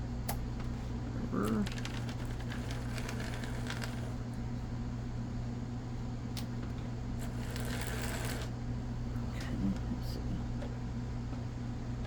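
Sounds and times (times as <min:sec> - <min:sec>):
model train motor humming: 0:07.2 - 0:08.5.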